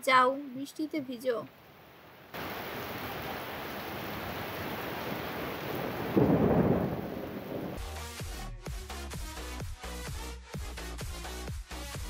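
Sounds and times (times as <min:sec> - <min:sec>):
heavy rain pouring: 0:02.2 - 0:08.0
thunder rumble: 0:02.4 - 0:07.8.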